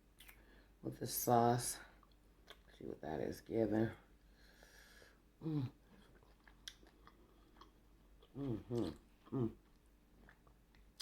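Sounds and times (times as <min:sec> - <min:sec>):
person chewing: 0:02.0 - 0:02.8, 0:05.5 - 0:11.0
person humming mm: 0:05.4 - 0:05.8, 0:08.4 - 0:09.6.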